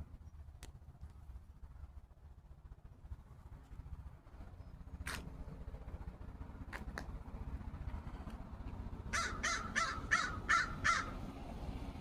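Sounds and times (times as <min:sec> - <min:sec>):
bird giving harsh calls: 0:09.1 - 0:11.2.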